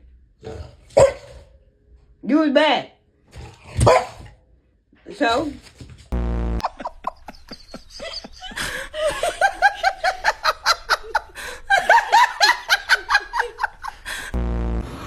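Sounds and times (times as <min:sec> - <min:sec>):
flat buzzing tone: 0:06.1 - 0:07.2, 0:14.3 - 0:15.0
hearty laughter: 0:06.6 - 0:14.4.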